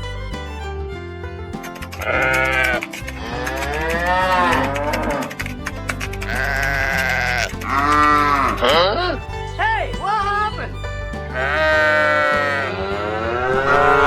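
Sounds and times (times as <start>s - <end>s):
background music with a beat: 0.0s - 14.0s
sheep bleating: 2.0s - 5.4s, 6.3s - 9.9s, 11.3s - 14.0s.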